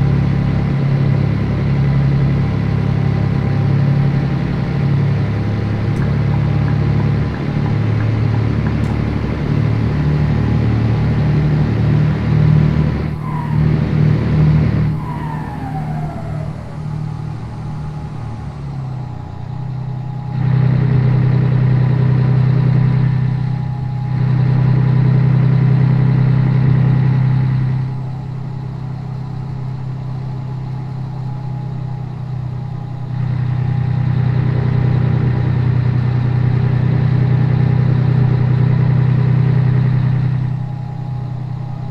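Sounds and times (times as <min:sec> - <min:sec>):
truck diesel engine running: 0:00.0 - 0:26.6
short falling whistle: 0:10.0 - 0:19.2.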